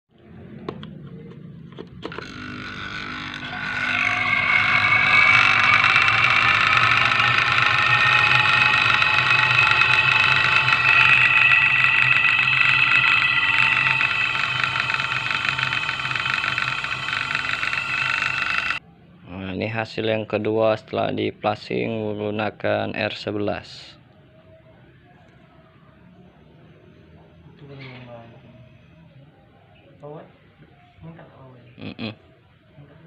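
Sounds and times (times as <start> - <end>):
low hum: 2.1 - 18.8.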